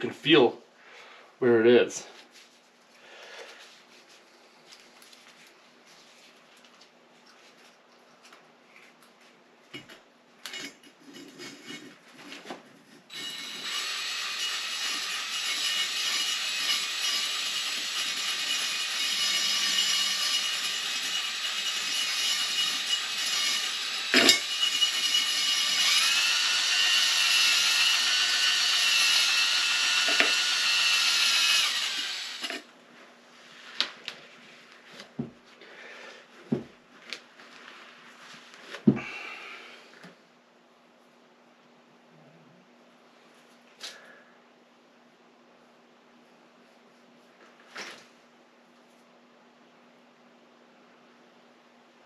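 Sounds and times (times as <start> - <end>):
drill spinning cylinder hone: 13.1 - 32.7.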